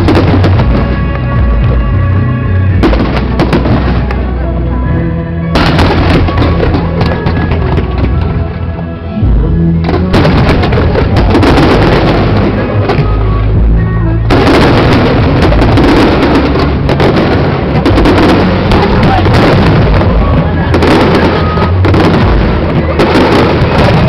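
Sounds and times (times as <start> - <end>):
fireworks bursting and crackling: 0.0 - 2.1, 2.7 - 4.4, 5.6 - 8.7, 9.5 - 24.0
music: 0.0 - 24.0.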